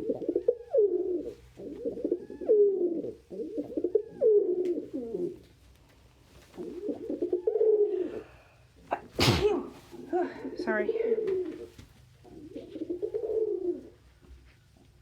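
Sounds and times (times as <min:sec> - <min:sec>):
pigeons cooing: 0:00.0 - 0:05.5, 0:06.5 - 0:14.0.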